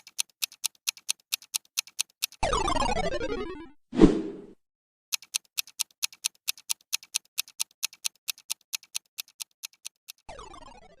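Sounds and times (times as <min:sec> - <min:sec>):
countdown clock ticking: 0:00.0 - 0:02.8, 0:05.1 - 0:10.8.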